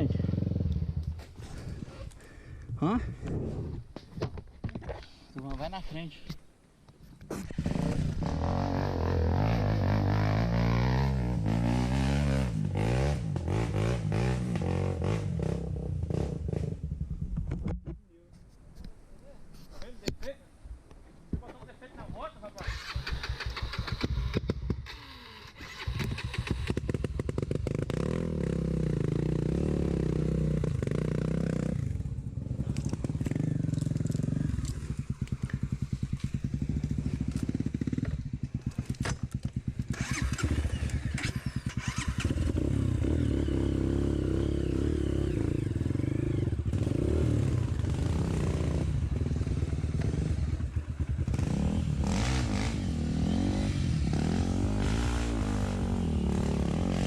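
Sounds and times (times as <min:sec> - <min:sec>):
motorcycle engine revving: 0:00.0 - 0:01.4, 0:07.5 - 0:17.3, 0:22.6 - 0:57.0.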